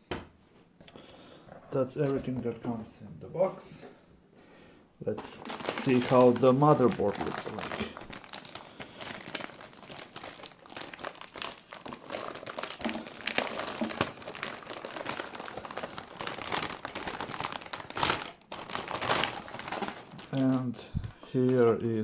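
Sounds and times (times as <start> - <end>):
packaging crinkling: 5.2 - 22.0.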